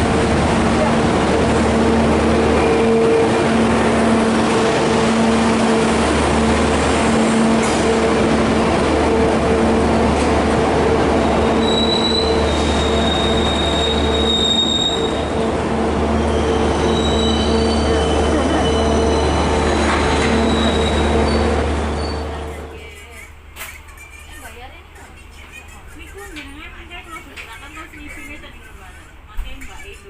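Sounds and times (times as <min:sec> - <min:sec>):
passenger train rumbling on track: 0:00.0 - 0:30.0
high wheel squeal: 0:11.2 - 0:15.4, 0:16.1 - 0:22.8.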